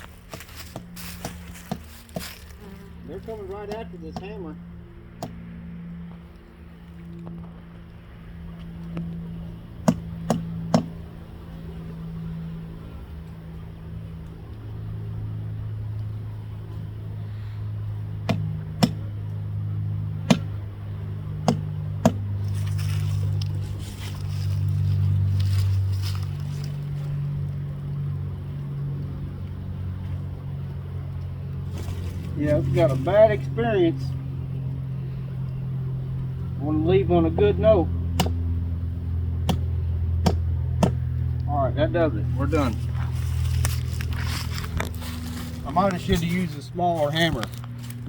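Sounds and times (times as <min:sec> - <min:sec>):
steady low hum: 0:00.0 - 0:48.0
hammer striking wood: 0:00.4 - 0:02.3, 0:09.8 - 0:10.9, 0:18.2 - 0:19.0, 0:20.3 - 0:20.5, 0:21.4 - 0:22.2, 0:38.2 - 0:38.4, 0:39.4 - 0:41.0.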